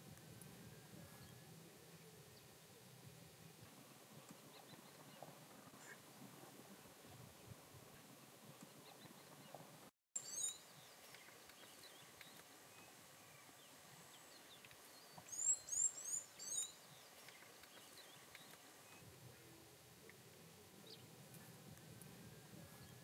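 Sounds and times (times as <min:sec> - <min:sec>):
faint outdoor background hiss: 0:00.0 - 0:23.0
bird chirping: 0:04.1 - 0:06.0, 0:06.8 - 0:23.0.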